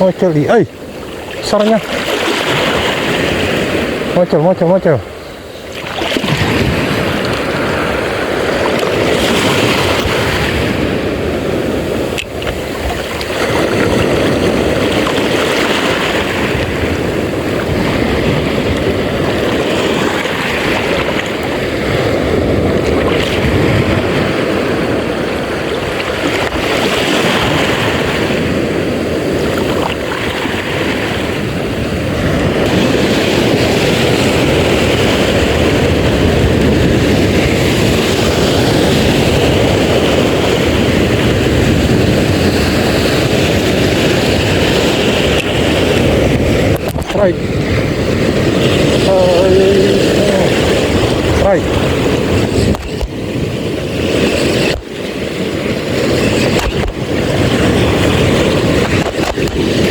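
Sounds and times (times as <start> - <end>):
sea water rushing: 0.0 - 59.9
wind buffeting microphone: 0.0 - 59.9.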